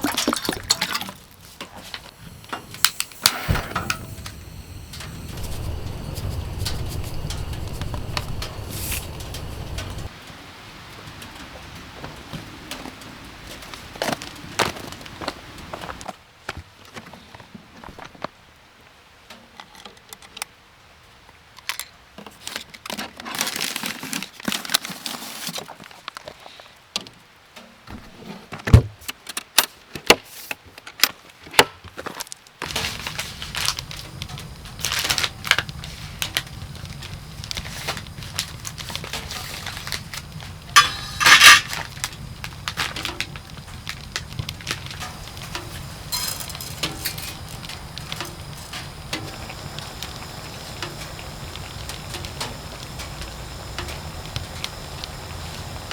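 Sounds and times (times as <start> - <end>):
loud crackly clatter: 1.4 - 10.2, 32.6 - 55.9
steady low rumble: 2.0 - 10.1, 32.7 - 55.9
crinkling rustles: 21.6 - 29.4, 30.2 - 55.9.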